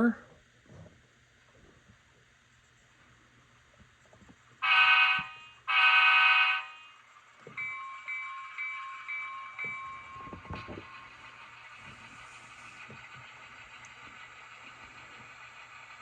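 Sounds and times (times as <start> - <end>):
diesel air horn blasts: 4.6 - 6.8
locomotive bell ringing: 4.6 - 11.8.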